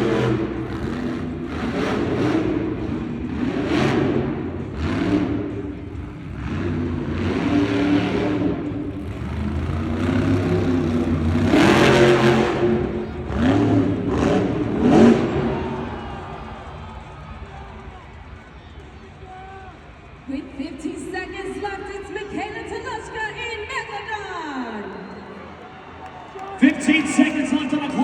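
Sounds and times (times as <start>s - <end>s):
truck engine revving hard: 0.0s - 17.1s.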